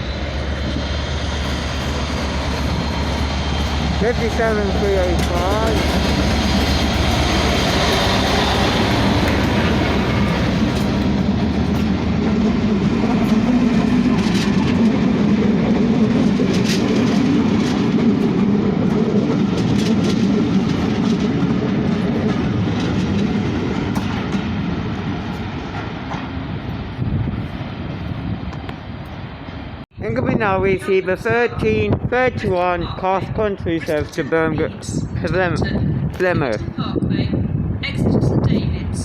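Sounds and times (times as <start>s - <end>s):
diesel locomotive rumbling: 0.0s - 39.0s
wheels clicking over rail joints: 1.4s - 24.6s.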